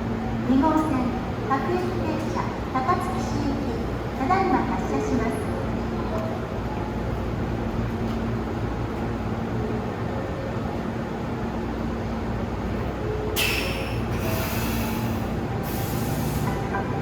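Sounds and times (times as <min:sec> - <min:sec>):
electric train running hum: 0:00.0 - 0:17.0
loud air hiss: 0:13.4 - 0:16.8.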